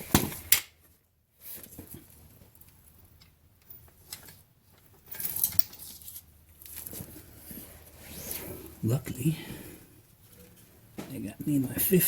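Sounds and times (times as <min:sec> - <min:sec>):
tools rattling: 0:03.7 - 0:07.0.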